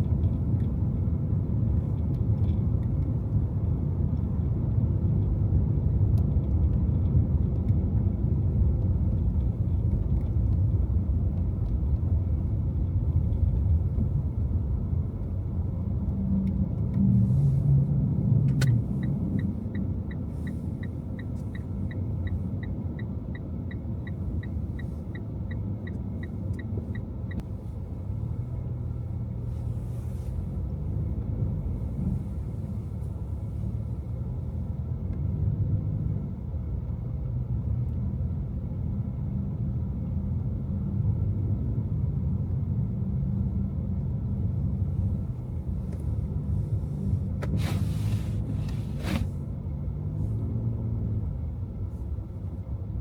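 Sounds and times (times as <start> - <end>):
turn signal ticking: 0.0 - 35.3
car road and engine rumble: 0.0 - 53.0.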